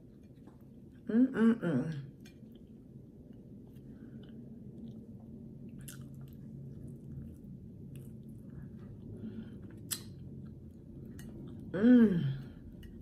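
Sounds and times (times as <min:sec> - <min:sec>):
person chewing close up: 0:02.2 - 0:11.7.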